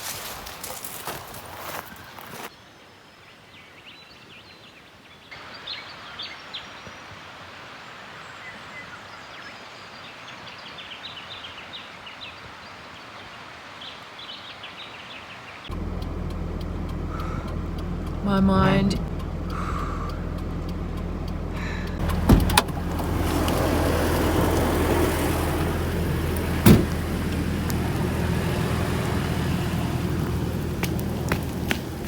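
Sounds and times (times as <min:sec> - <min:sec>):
small birds chirping: 0:00.4 - 0:32.0
vehicle engine hum from inside: 0:15.7 - 0:32.0.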